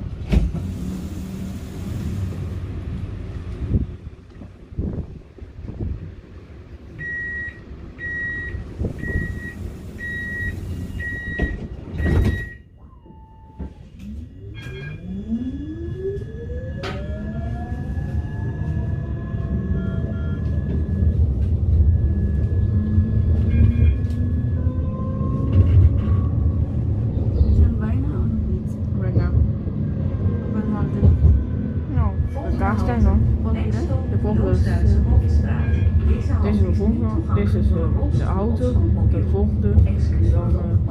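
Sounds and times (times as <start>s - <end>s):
tram rumble: 0.0s - 40.9s
tram door warning beeps: 7.0s - 26.0s
sliding doors shutting with thud: 8.6s - 12.6s.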